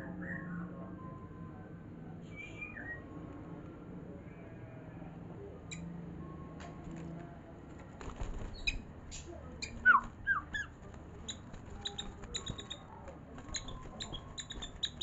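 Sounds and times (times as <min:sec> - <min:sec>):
bird singing chirps and whistles: 0:02.3 - 0:03.0, 0:09.6 - 0:10.7.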